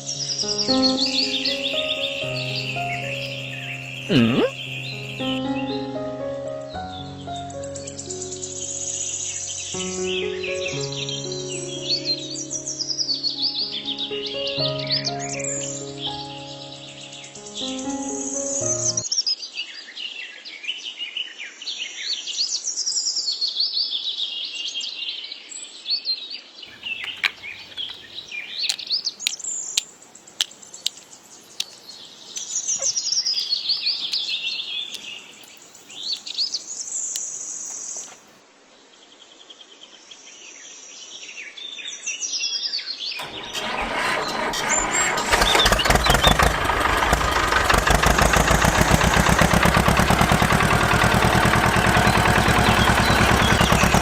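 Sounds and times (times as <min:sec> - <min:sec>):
birds chirping and singing: 0:00.0 - 0:05.9, 0:26.7 - 0:38.3, 0:48.4 - 0:54.0
engine running loudly: 0:43.2 - 0:54.0.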